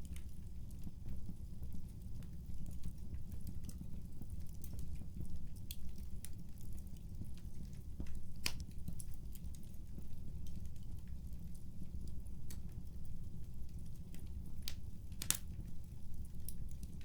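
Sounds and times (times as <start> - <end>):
wood fire crackling: 0.0 - 17.0
fire popping: 3.2 - 11.2, 13.7 - 17.0.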